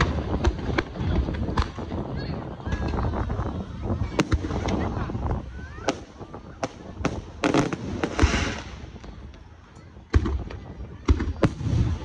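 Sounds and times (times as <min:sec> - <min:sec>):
fireworks bursting: 0:00.0 - 0:12.0
crackling hiss: 0:02.8 - 0:09.4.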